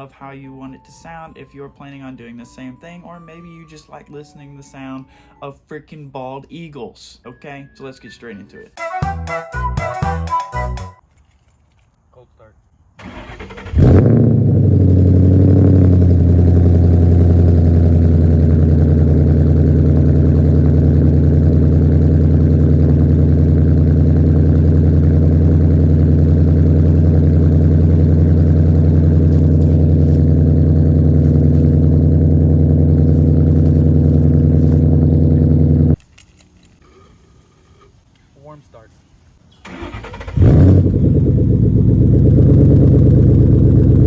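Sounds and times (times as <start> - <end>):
car engine idling loudly: 14.4 - 36.0, 40.5 - 44.0.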